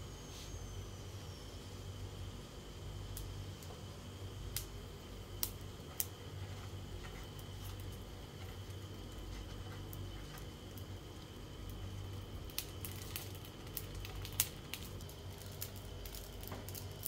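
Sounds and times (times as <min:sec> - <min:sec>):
steady low hum: 0:00.0 - 0:17.0
oil crackling and popping: 0:04.5 - 0:17.0.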